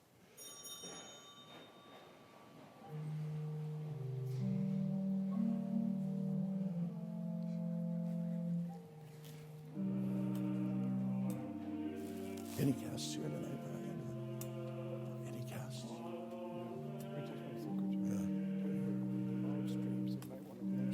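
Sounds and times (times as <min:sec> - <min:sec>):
small bell ringing: 0:00.3 - 0:02.3
organ playing slow chords: 0:02.8 - 0:20.9.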